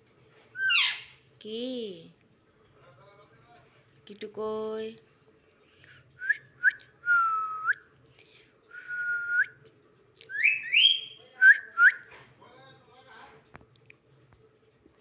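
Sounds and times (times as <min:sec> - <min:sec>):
parrot whistling: 0:00.6 - 0:01.2, 0:10.3 - 0:12.0.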